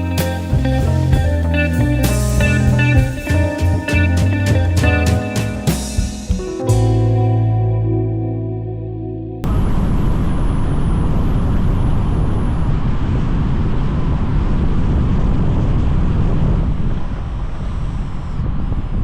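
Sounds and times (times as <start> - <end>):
car road and wind rumble: 9.4 - 19.0.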